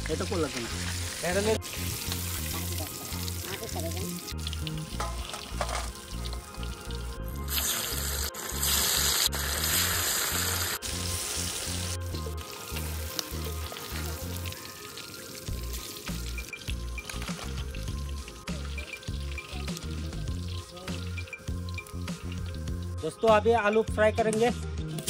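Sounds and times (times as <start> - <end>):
fish frying in hot oil: 0.0 - 23.0
music with bass beat: 15.5 - 25.0.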